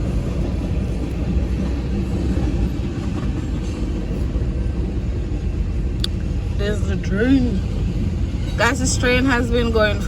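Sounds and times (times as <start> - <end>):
wheels clickety-clack: 0.0 - 6.9
train rumbling past: 0.0 - 10.0.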